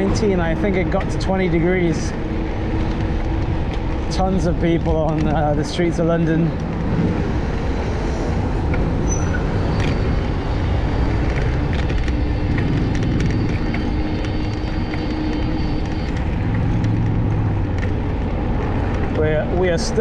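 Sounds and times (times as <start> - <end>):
traffic rumble: 0.0 - 20.0
wind: 0.0 - 20.0.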